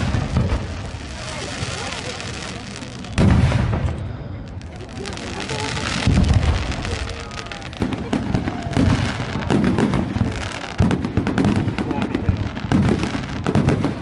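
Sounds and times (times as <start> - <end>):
firecrackers crackling: 0.0 - 14.0
deep booms of bursting shells: 3.1 - 4.0.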